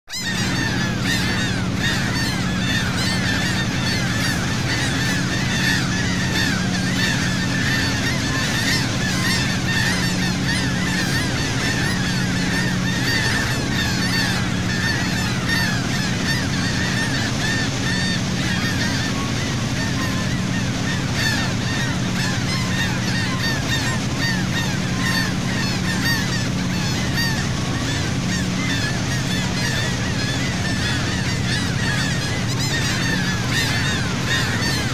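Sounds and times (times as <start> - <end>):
boat engine drone: 0.0 - 34.9
seagulls calling: 0.1 - 34.9.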